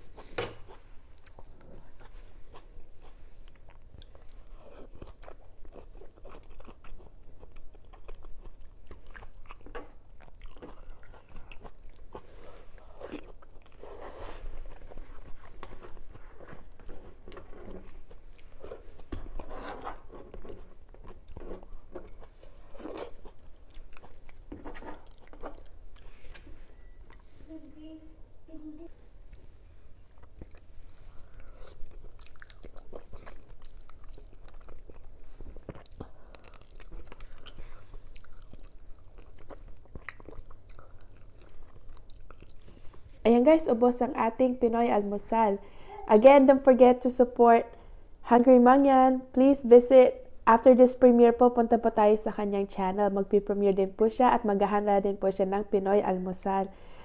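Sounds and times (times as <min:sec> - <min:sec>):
mouth chewing and biting food: 0:00.2 - 0:26.4, 0:29.2 - 0:43.2.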